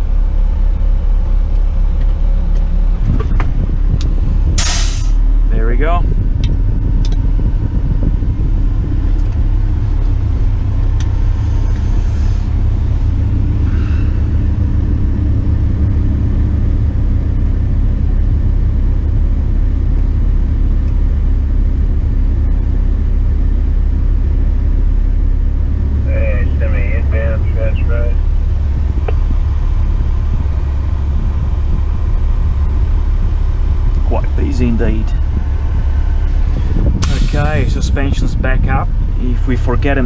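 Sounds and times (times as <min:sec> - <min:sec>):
truck diesel engine running: 0:00.0 - 0:40.0.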